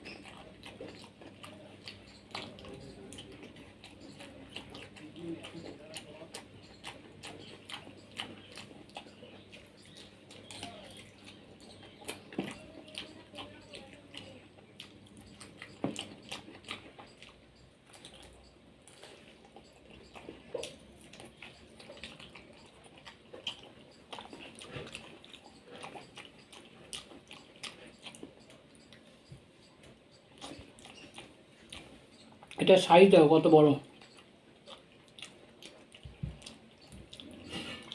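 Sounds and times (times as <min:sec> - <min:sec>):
wet mouth clicks: 0:00.0 - 0:32.6
chewing soft fruit: 0:00.0 - 0:37.9.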